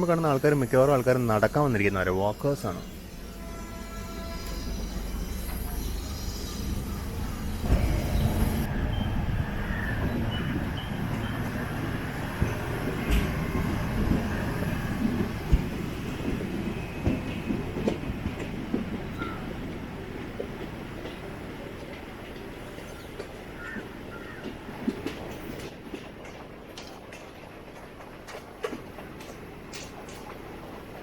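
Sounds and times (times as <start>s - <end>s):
train rumble: 0.0s - 31.0s
train wheel squeals: 0.3s - 15.5s
wheels and couplings clanking: 10.0s - 31.0s.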